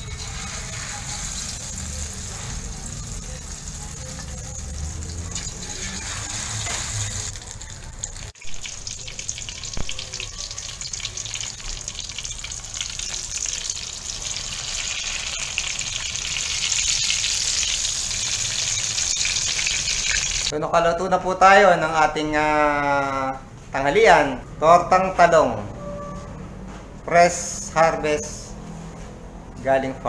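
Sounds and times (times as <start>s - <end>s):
food sizzling in hot oil: 0.0s - 20.5s.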